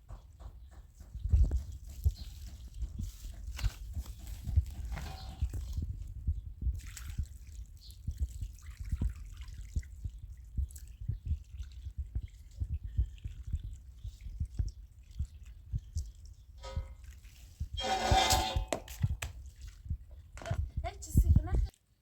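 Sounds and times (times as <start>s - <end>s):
soft low thumps and knocks: 0.0s - 7.3s, 8.0s - 21.7s.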